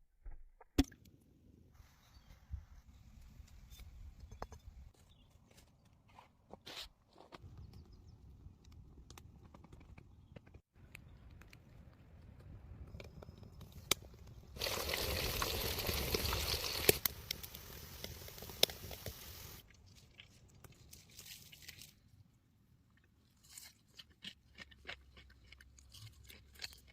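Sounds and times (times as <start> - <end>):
crisp food crunching: 23.2 - 26.9.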